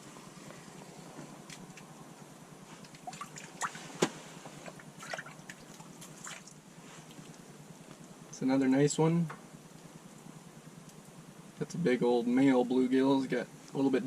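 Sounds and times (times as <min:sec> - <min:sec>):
water drips and splashes: 0:02.8 - 0:03.8, 0:04.6 - 0:06.6.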